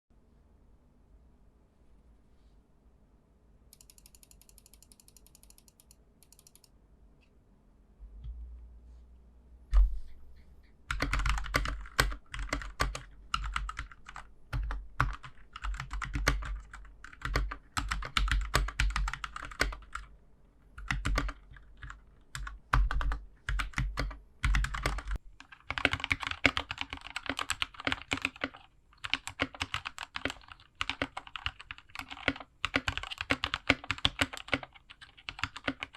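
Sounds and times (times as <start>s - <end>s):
mechanical keyboard typing: 3.7s - 6.7s, 10.9s - 20.1s, 20.8s - 35.9s.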